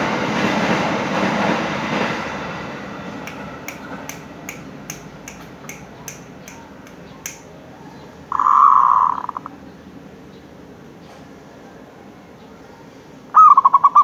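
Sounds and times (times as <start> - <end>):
faint even ticks: 3.3 - 7.4.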